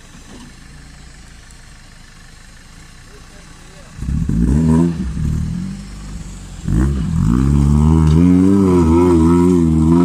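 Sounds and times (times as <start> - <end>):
off-road vehicle engine revving: 2.7 - 10.0.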